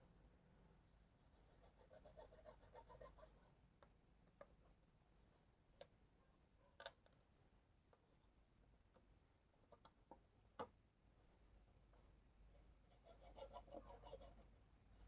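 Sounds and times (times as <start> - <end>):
faint scratching of stick: 0.8 - 3.6.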